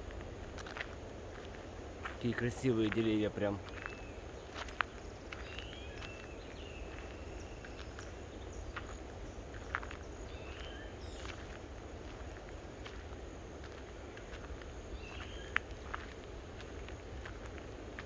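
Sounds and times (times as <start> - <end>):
footsteps: 11.3 - 18.0.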